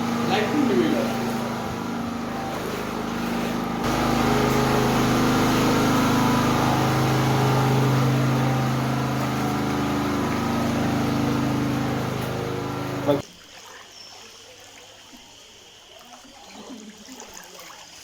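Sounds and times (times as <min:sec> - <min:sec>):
engine humming steadily: 0:00.0 - 0:13.2.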